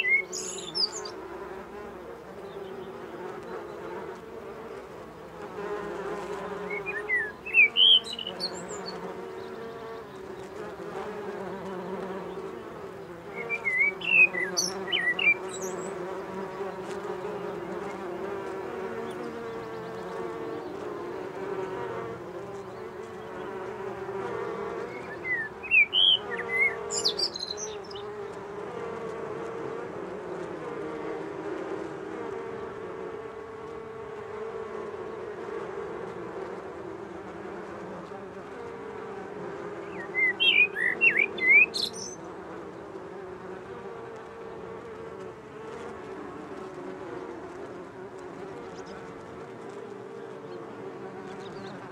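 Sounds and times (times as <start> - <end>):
songbird chirping: 0.0 - 29.0, 39.6 - 43.0
bees buzzing: 0.0 - 51.9.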